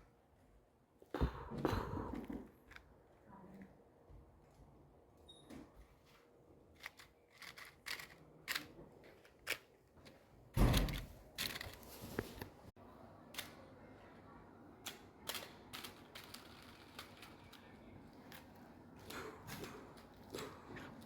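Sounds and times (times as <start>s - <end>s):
thump: 10.6s - 11.1s.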